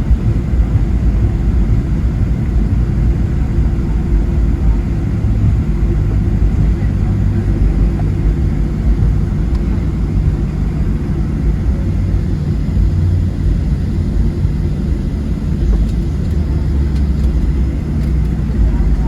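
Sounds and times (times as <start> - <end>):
airplane cabin engine rumble: 0.0 - 19.0.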